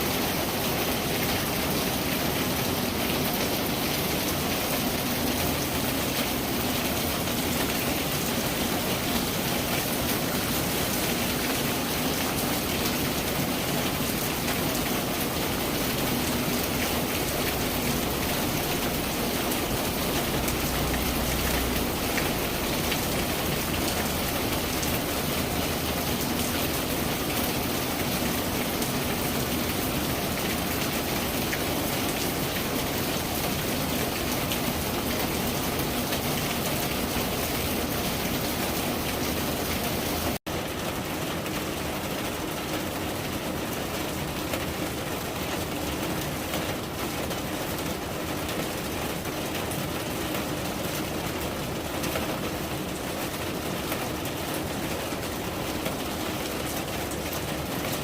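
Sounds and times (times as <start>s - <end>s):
rain hissing: 0.0s - 40.4s.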